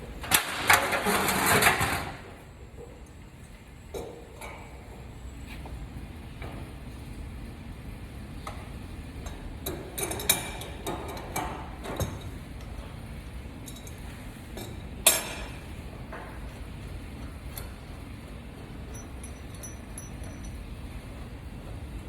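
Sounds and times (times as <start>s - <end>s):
metal parts clinking and knocking: 18.9s - 20.7s.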